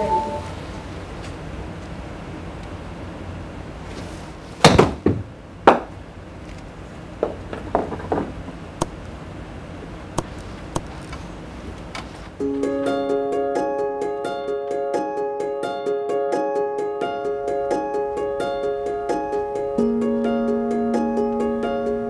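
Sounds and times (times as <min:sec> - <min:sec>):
music: 0:00.0 - 0:00.5, 0:12.4 - 0:22.0
golf clubs striking balls: 0:07.2 - 0:09.0.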